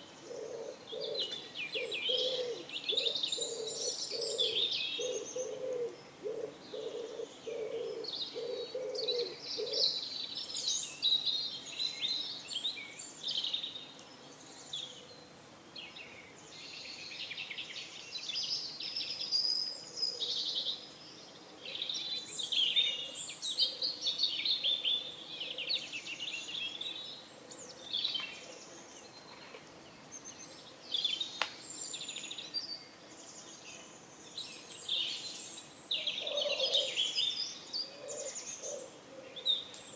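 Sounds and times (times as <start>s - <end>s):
songbirds chirping: 0.0s - 39.9s
pigeon cooing: 0.3s - 9.8s, 36.2s - 37.0s.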